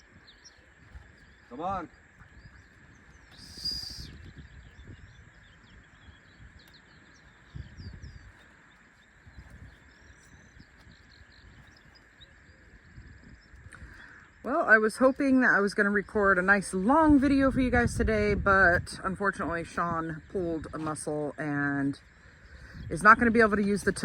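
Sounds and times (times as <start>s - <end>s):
small birds chirping: 0.0s - 24.0s
low rumble: 16.0s - 20.8s.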